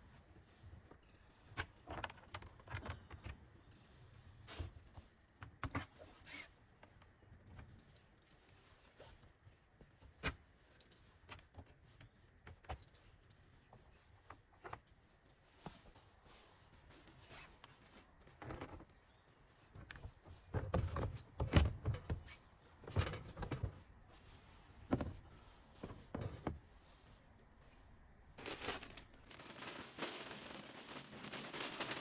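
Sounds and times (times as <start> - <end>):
wood shavings rustling: 28.4 - 32.0.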